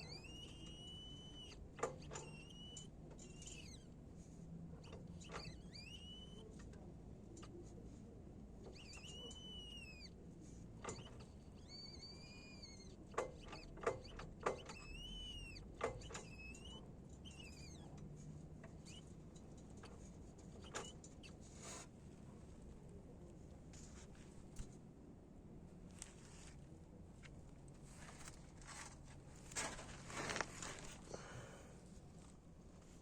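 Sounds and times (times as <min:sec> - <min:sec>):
high-pitched car squeak: 0:00.0 - 0:04.0, 0:04.7 - 0:06.6, 0:08.6 - 0:10.2, 0:10.8 - 0:18.0, 0:18.7 - 0:19.2, 0:19.8 - 0:21.9.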